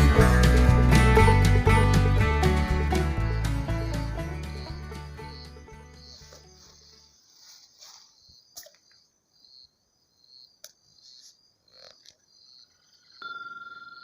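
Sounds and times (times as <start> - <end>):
background music: 0.0 - 7.1
insects chirping: 3.7 - 14.0.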